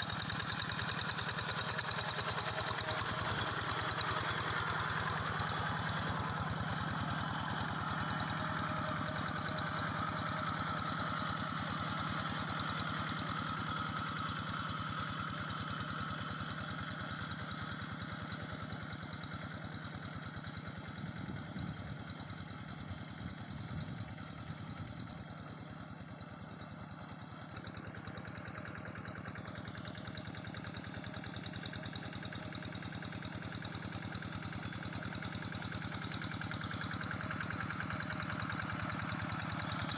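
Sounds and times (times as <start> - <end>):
diesel engine running: 0.0 - 14.4, 31.6 - 39.9.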